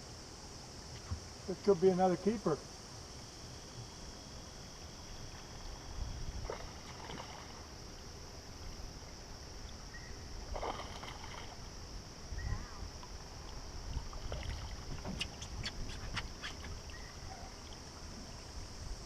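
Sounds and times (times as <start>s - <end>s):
high-pitched insect drone: 0.0s - 19.0s
wind rumbling on microphone: 5.6s - 7.4s, 9.9s - 19.0s
water splashing: 6.4s - 7.9s, 10.4s - 11.7s, 13.0s - 18.0s.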